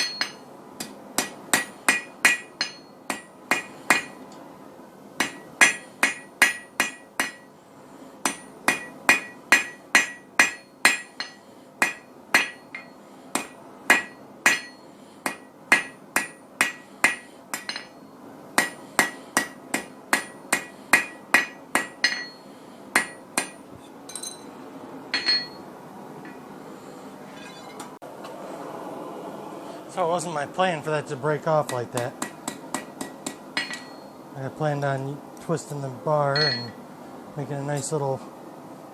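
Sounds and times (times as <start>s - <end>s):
hammer striking steel on anvil: 0.0s - 4.2s, 5.2s - 7.5s, 8.2s - 18.0s, 18.6s - 24.5s, 25.1s - 26.4s, 31.6s - 34.2s, 36.3s - 36.8s.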